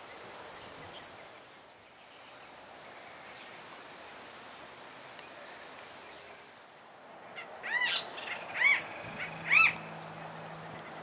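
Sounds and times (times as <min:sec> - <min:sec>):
bird calling: 0:07.3 - 0:11.0.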